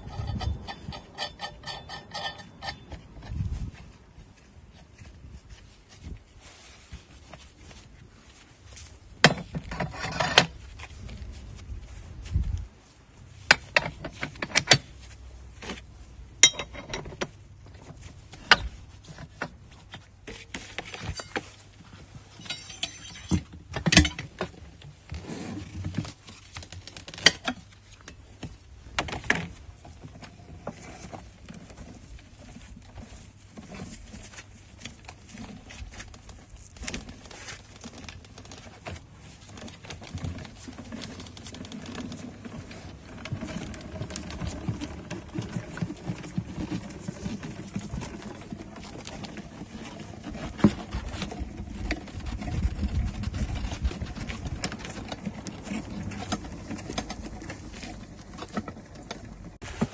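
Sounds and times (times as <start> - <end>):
metal clicks and clanks: 0.0 - 3.3, 20.3 - 21.5, 22.3 - 24.6.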